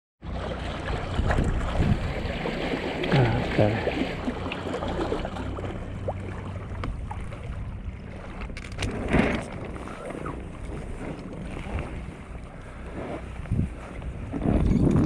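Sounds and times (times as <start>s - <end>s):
water splashing: 0.2s - 15.0s
wind buffeting microphone: 0.8s - 2.6s, 6.2s - 15.0s.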